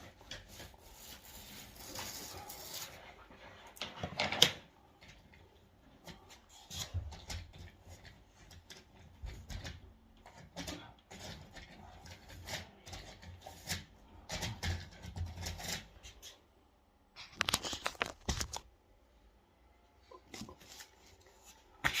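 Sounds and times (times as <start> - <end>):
rustling scraping and knocking: 0.0 - 4.4.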